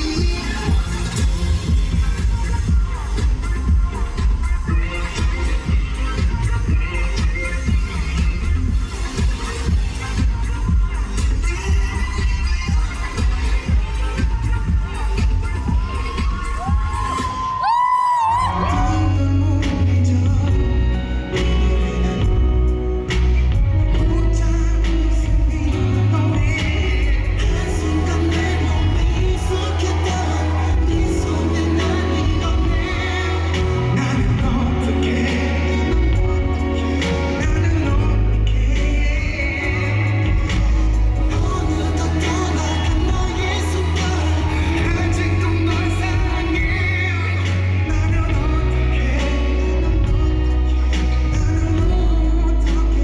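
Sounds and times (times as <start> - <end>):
backing track with heavy bass: 0.0 - 53.0
man singing: 0.0 - 53.0.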